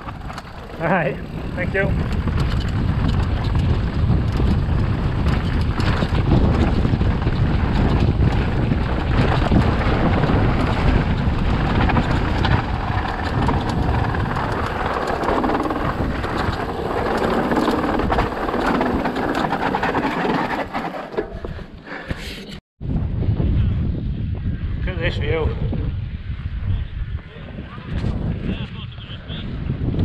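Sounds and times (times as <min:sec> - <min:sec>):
bike rattling on rocky trail: 0:00.0 - 0:22.4
bike tyres rumbling: 0:00.0 - 0:22.6
wind on microphone: 0:00.0 - 0:30.0.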